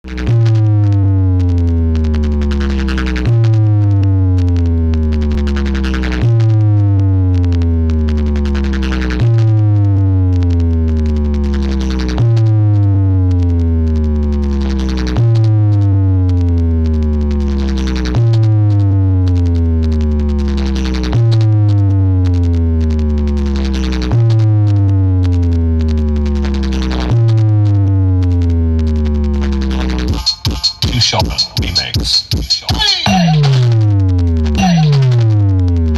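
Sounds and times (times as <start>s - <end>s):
electronic dance music: 0.0s - 0.8s, 29.0s - 35.9s.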